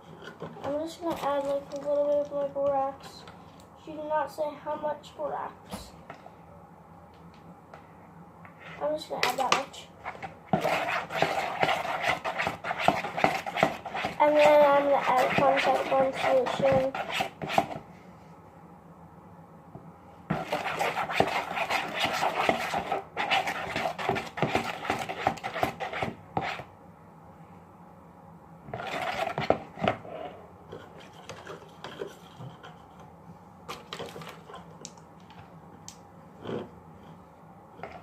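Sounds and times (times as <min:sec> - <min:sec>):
utensil scraping against a bowl: 0:10.0 - 0:17.8, 0:20.3 - 0:26.7, 0:28.7 - 0:32.9.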